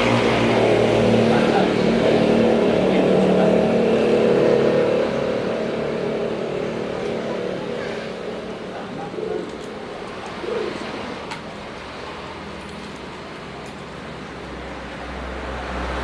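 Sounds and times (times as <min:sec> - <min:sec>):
passing vehicle engine hum: 0:00.0 - 0:16.0
pigeon cooing: 0:07.8 - 0:11.2.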